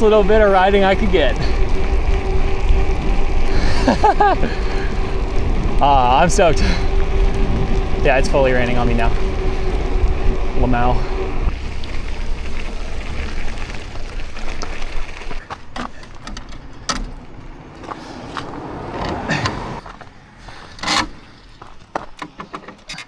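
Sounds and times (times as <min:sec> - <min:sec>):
bike tyre and wind noise: 0:00.0 - 0:23.0
bike clicks and knocks: 0:11.7 - 0:23.0.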